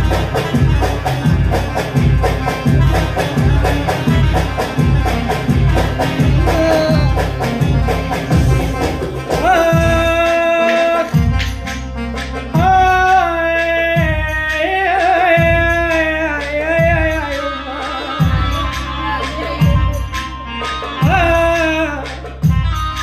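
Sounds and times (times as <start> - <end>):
deep drum beat: 0.0 - 11.7, 12.5 - 13.2, 15.2 - 17.4
wavering melody line: 0.0 - 13.4, 14.8 - 23.0.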